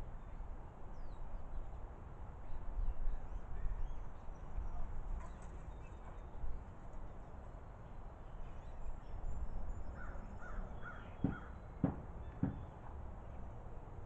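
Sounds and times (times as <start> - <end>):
crows cawing: 10.0 - 11.5.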